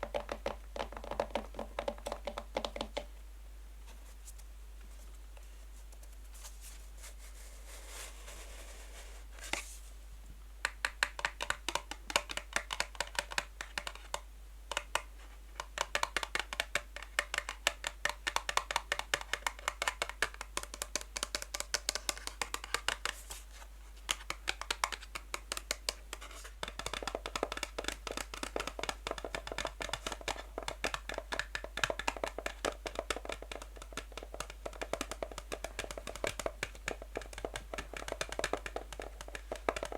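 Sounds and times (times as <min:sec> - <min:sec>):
fingernails tapping on a box: 0:00.0 - 0:03.1, 0:10.6 - 0:23.2, 0:26.6 - 0:39.9.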